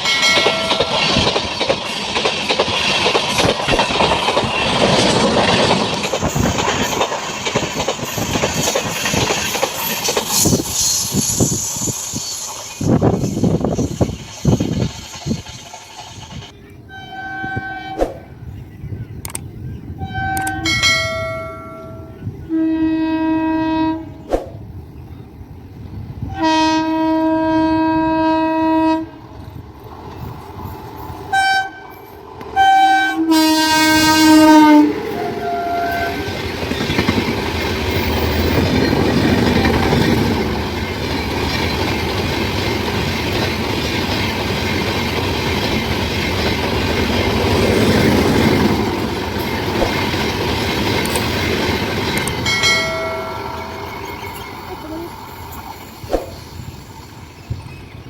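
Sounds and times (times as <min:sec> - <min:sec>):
train wheel and rail noise: 0:00.0 - 0:58.0
locomotive horn blasts: 0:16.9 - 0:18.1, 0:20.0 - 0:24.2, 0:26.3 - 0:29.2, 0:31.3 - 0:31.9, 0:32.6 - 0:36.4.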